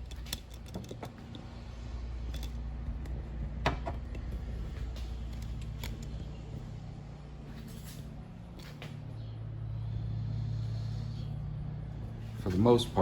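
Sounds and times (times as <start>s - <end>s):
objects clicking and knocking: 0.0s - 1.5s
steady low hum: 0.0s - 13.0s.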